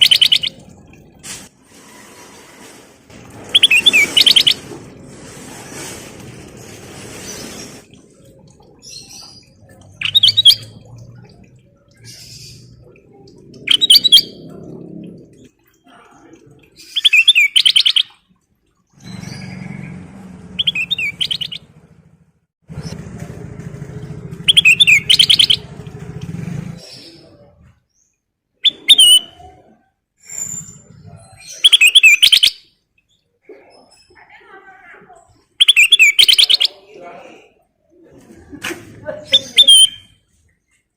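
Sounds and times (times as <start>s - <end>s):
bulbul singing fluttering high notes: 0.0s - 0.6s, 8.2s - 12.9s, 20.6s - 21.7s, 24.4s - 25.7s.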